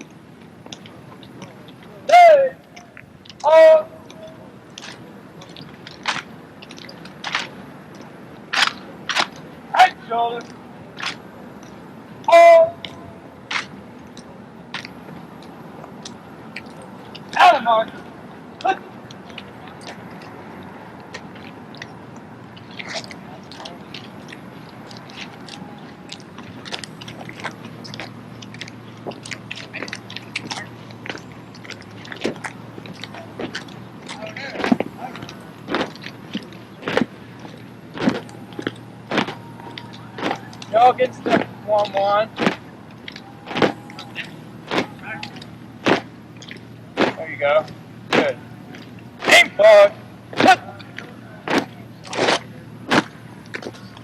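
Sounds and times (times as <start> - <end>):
footsteps: 19.0 - 54.0.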